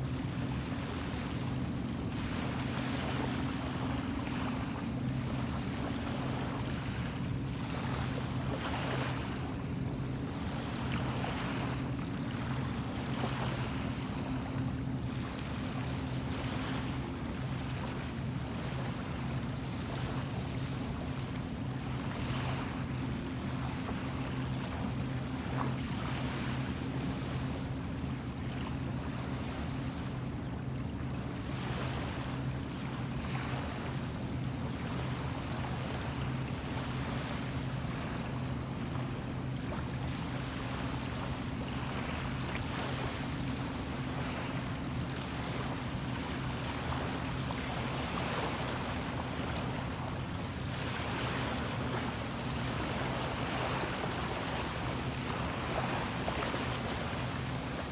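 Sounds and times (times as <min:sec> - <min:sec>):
low engine hum: 0:00.0 - 0:57.9
waves washing in: 0:00.0 - 0:57.9.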